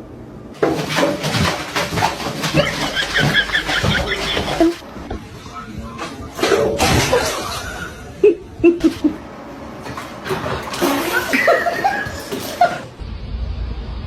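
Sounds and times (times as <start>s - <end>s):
person laughing: 2.5s - 4.8s, 7.0s - 9.2s, 10.9s - 12.9s.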